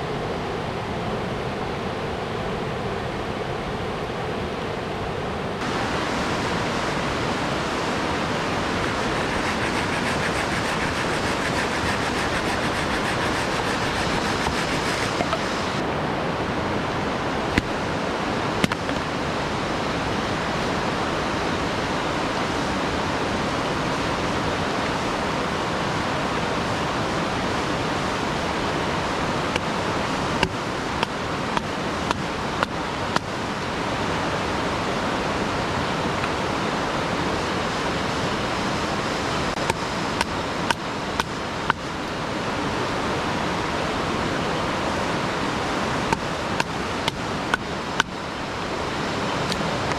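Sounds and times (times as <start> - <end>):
waterfall rushing: 5.6 - 49.9.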